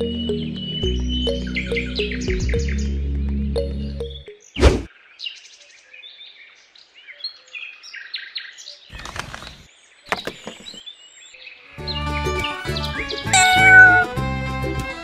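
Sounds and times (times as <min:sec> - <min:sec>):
small birds chirping: 0:00.0 - 0:14.2
plastic handling noise: 0:09.0 - 0:10.8.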